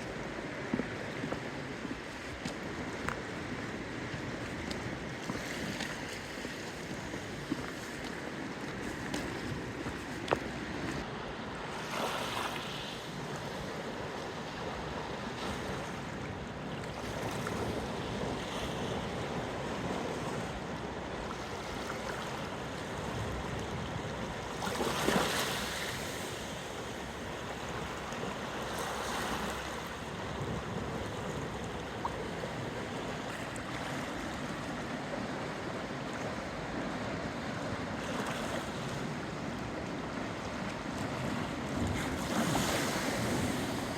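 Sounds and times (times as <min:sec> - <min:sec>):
waves washing in: 0:00.0 - 0:43.9.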